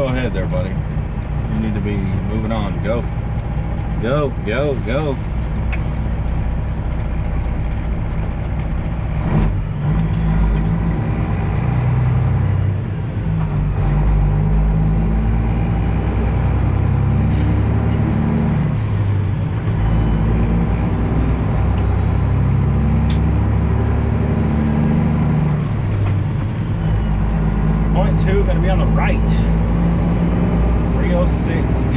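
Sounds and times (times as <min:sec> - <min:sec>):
truck diesel engine running: 0:00.0 - 0:31.9.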